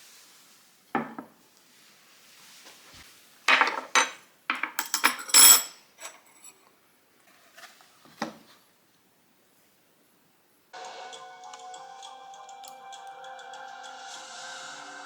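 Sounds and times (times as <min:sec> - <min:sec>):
dishes and cutlery clattering: 0:03.5 - 0:06.6.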